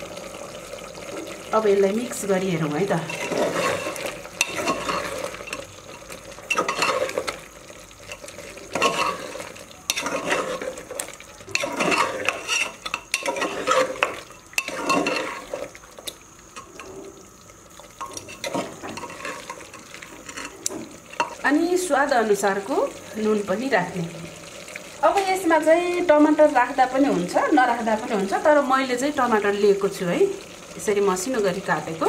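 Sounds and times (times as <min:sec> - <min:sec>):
metal spoon scraping cooking pot: 0:03.0 - 0:07.4, 0:08.1 - 0:15.6, 0:18.0 - 0:21.4.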